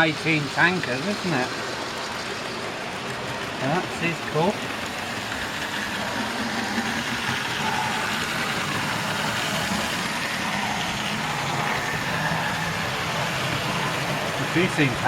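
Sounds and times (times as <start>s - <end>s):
model train motors whirring: 0.0s - 15.0s
wheels rolling on rails: 0.0s - 15.0s.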